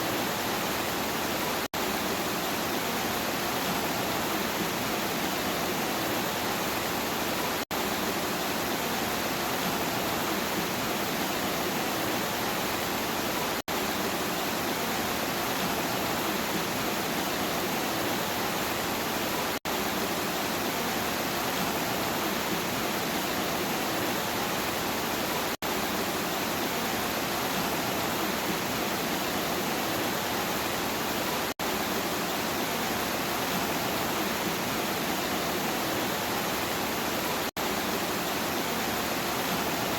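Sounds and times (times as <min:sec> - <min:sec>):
dense rain hiss: 0:00.0 - 0:39.9.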